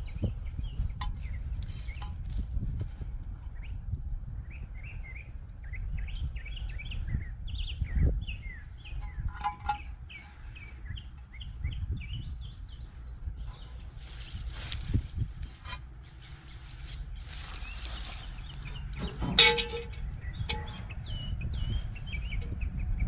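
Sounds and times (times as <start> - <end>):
low rumble: 0.0 - 23.0
songbirds chirping and singing: 0.0 - 23.0
short clink: 19.2 - 20.9.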